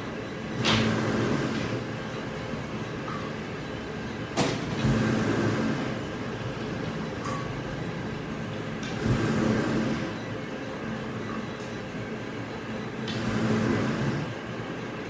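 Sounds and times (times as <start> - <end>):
factory machinery running: 12.9 - 14.6.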